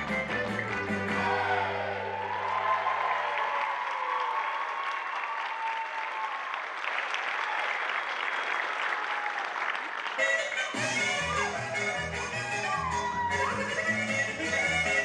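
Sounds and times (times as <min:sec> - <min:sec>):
music playing: 0:00.0 - 0:02.3, 0:10.2 - 0:15.0
audience applauding: 0:00.0 - 0:14.9.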